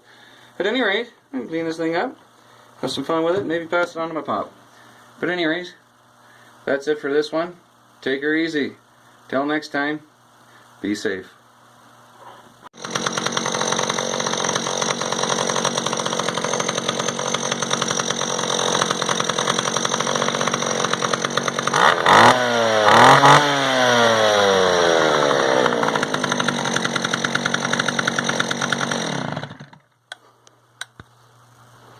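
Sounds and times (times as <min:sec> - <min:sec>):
chainsaw engine idling and revving: 0:12.8 - 0:29.9.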